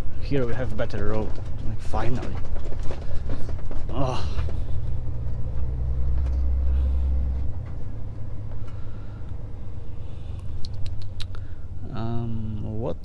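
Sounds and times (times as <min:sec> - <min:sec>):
truck engine and road noise: 0:00.0 - 0:13.0
strong low drone: 0:03.9 - 0:13.0
sharp clicks: 0:10.4 - 0:11.4.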